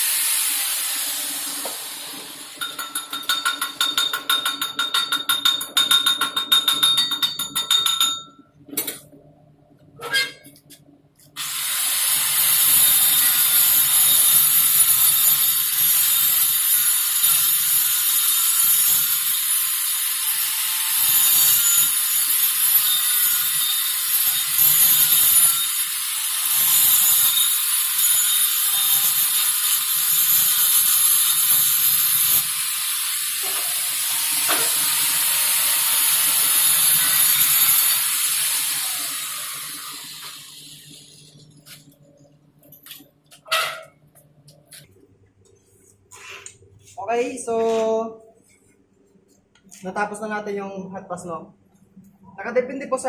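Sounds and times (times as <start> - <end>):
welding arc crackling hiss: 0.0 - 2.9, 11.4 - 41.9.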